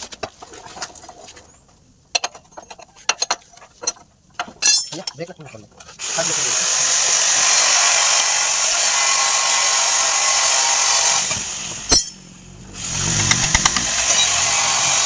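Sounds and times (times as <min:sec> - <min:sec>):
power tool whining: 0:06.0 - 0:15.0.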